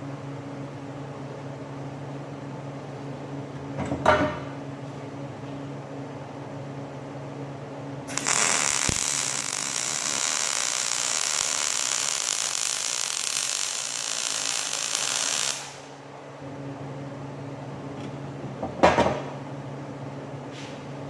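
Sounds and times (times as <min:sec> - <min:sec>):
arc welding hiss: 0:08.1 - 0:16.0.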